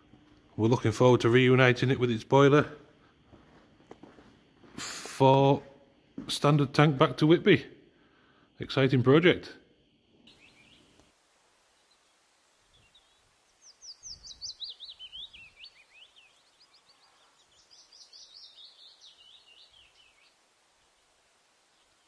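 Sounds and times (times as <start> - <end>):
faint outdoor background noise: 0.0 - 22.0
small songbird singing: 10.2 - 11.1, 11.7 - 22.0.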